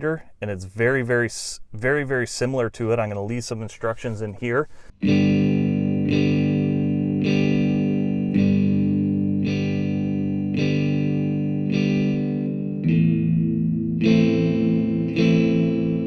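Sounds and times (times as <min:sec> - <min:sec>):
electric guitar sustained chords: 0:05.0 - 0:16.0.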